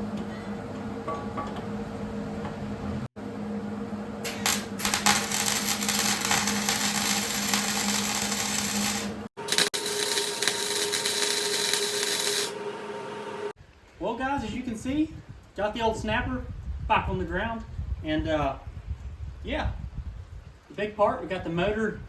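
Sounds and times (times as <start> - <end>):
harsh power tool noise: 4.3 - 13.6
power tool high whine: 4.3 - 13.6.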